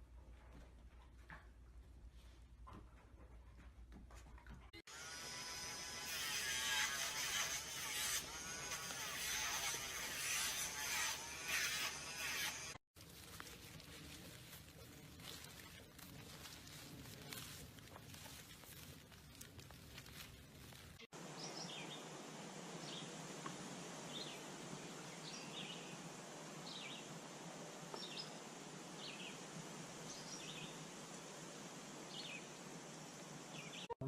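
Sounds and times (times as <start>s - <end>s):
faint steady hiss: 13.0s - 33.9s.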